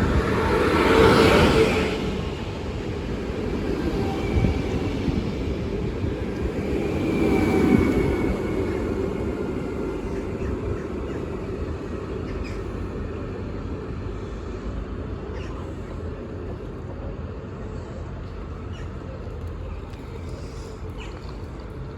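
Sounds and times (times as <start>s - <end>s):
electric train slowing: 0.0s - 18.6s.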